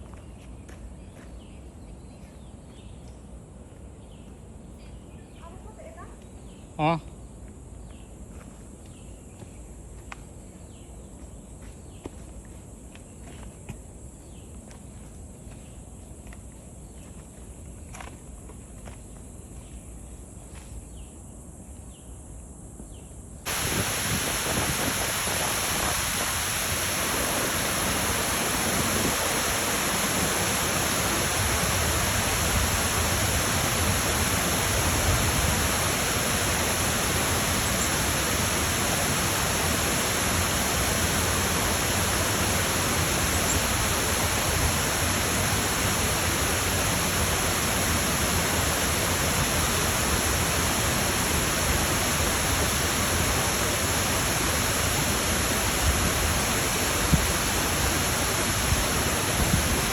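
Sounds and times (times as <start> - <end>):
footsteps on a trail: 0.0 - 3.2, 7.4 - 13.8, 14.5 - 19.7
flowing water rushing: 23.5 - 59.9.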